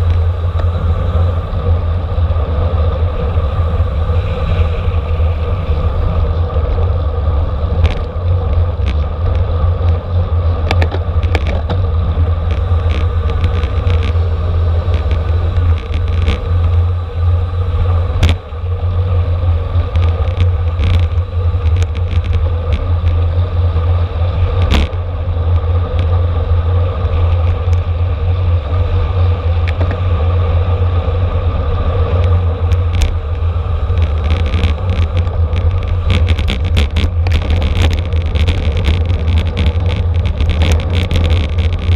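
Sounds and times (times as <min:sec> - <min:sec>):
bicycle tyres and drivetrain hum: 0:00.0 - 0:41.9
wind buffeting microphone: 0:00.0 - 0:41.9
bike clicks and knocks: 0:07.7 - 0:17.0, 0:18.1 - 0:18.7, 0:19.7 - 0:26.3, 0:29.4 - 0:30.2, 0:32.1 - 0:41.9.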